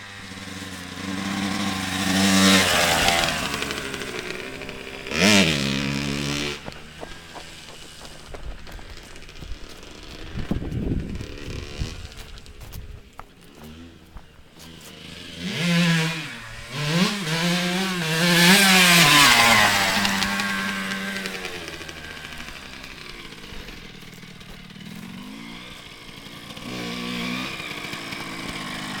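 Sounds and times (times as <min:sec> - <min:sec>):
motocross bike revving past: 0:00.0 - 0:29.0.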